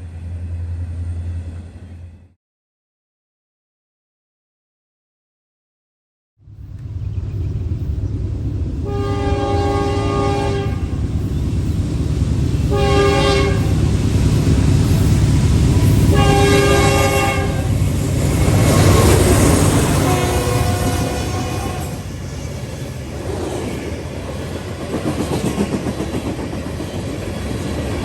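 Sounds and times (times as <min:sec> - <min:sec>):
passing train rumble: 0:00.0 - 0:02.4, 0:06.4 - 0:28.0
locomotive horn blasts: 0:08.8 - 0:10.9, 0:12.7 - 0:13.8, 0:16.1 - 0:17.8, 0:18.9 - 0:22.0.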